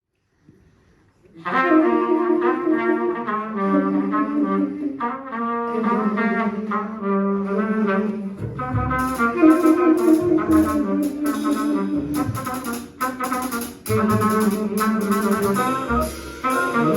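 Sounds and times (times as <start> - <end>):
tenor saxophone playing: 1.4 - 16.9
trumpet playing jazz melody: 1.4 - 16.9
bass: 7.6 - 16.9
drums with cymbals: 8.8 - 16.9.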